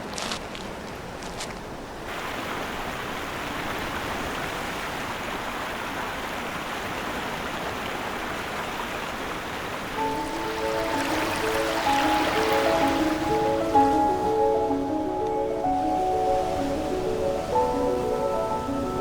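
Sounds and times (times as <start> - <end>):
stream flowing: 0.0 - 19.0
music with held notes: 10.0 - 19.0.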